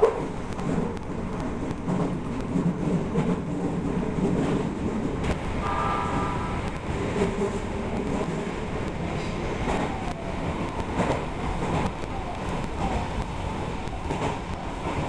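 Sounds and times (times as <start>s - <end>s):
rail joint clicks: 0.0s - 15.0s
wheels rumbling on rail: 0.0s - 15.0s
brief high tone: 5.6s - 6.7s.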